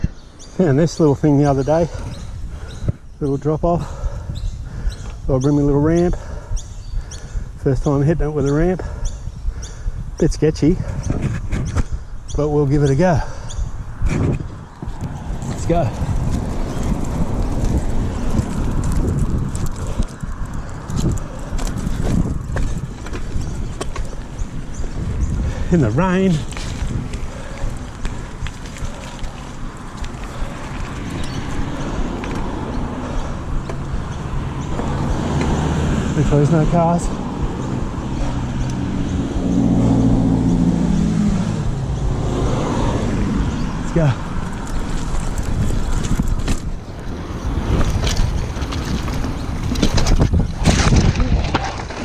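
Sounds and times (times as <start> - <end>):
bike tyres rumbling: 0.0 - 52.0
wind on microphone: 0.0 - 52.0.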